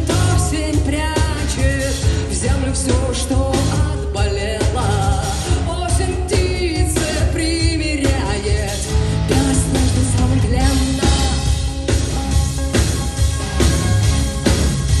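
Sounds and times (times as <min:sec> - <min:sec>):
woman singing: 0:00.0 - 0:11.7
live rock band playing: 0:00.0 - 0:15.0.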